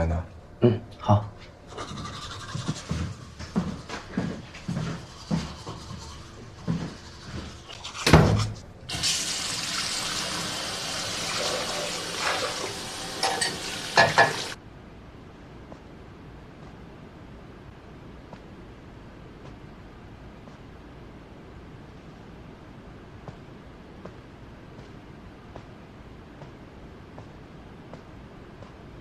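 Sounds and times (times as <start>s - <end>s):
tap water running into sink: 8.9s - 14.6s.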